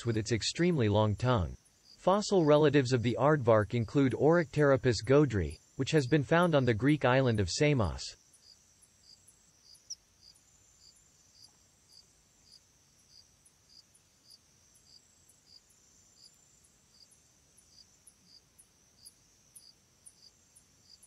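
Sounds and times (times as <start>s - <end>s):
crickets chirping: 0.0s - 21.0s
thin high insect trill: 1.6s - 21.0s.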